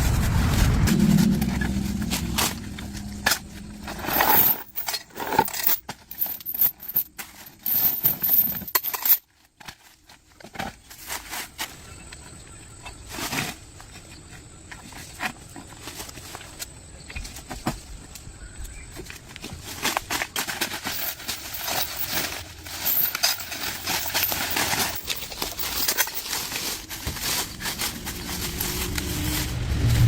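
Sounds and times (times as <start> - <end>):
low rumble: 0.0 - 5.3, 21.0 - 30.0.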